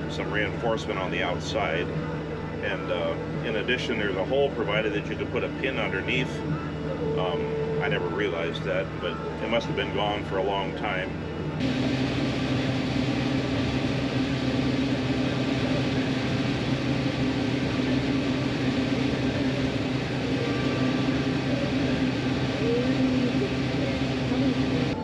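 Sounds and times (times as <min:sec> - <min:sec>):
diesel farm machine droning: 0:00.0 - 0:25.0.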